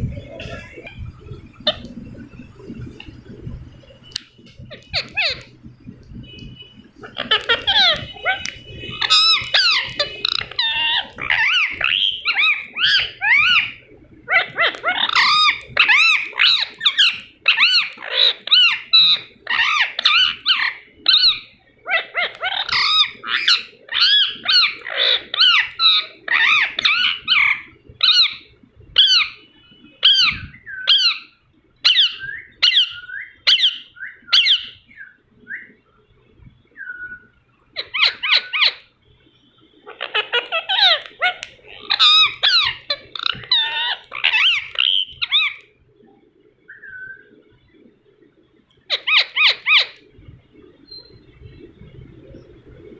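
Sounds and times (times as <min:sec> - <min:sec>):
parakeet chattering: 0:04.7 - 0:05.5, 0:07.0 - 0:28.4, 0:30.0 - 0:34.8, 0:37.8 - 0:38.9, 0:39.9 - 0:45.6, 0:48.9 - 0:50.0.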